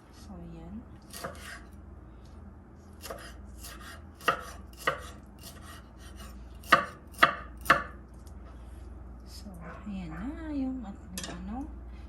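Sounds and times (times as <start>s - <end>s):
knife chopping meat: 1.1s - 1.7s, 3.0s - 8.0s.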